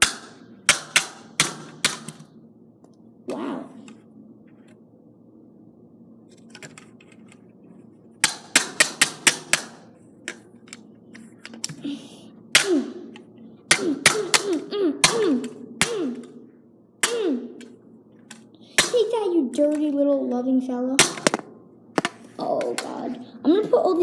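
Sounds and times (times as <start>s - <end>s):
scissors knocking plastic casing: 21.0s - 22.2s.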